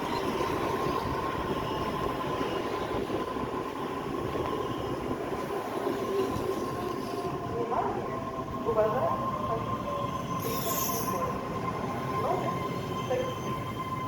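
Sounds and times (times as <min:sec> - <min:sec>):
train running: 0:00.0 - 0:14.0.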